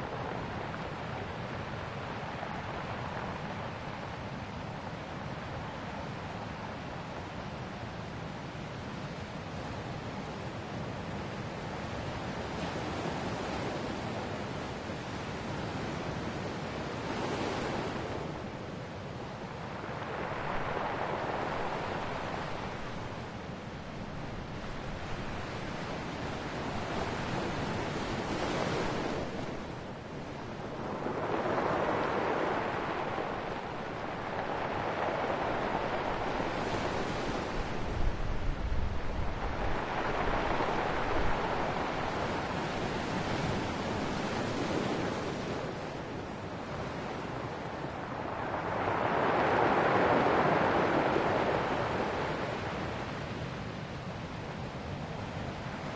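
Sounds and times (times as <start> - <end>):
ocean waves breaking on shore: 0.0 - 55.9
wind on microphone: 12.2 - 55.9.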